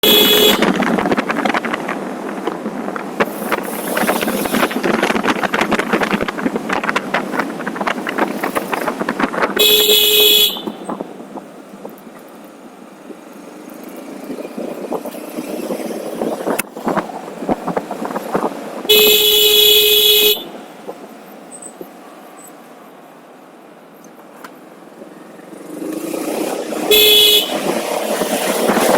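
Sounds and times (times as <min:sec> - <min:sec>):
vehicle horn honking: 0:00.0 - 0:00.8, 0:09.6 - 0:10.8, 0:18.9 - 0:20.6, 0:26.9 - 0:27.7
road and wind noise: 0:00.0 - 0:28.9.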